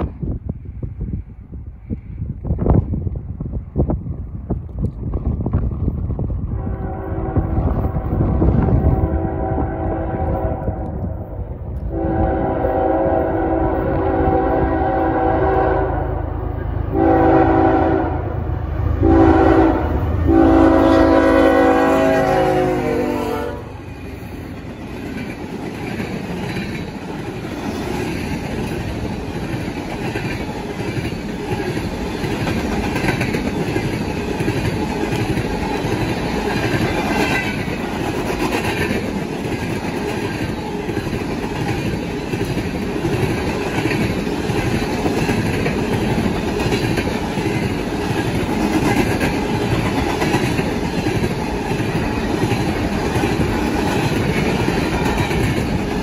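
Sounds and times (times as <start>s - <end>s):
freight train rolling past: 0.0s - 56.0s
wheels clicking over rail joints: 23.9s - 56.0s.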